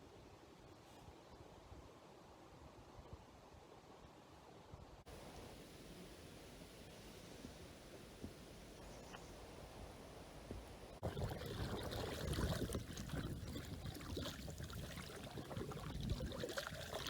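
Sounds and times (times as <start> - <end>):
river water splashing and gurgling: 11.0 - 17.0.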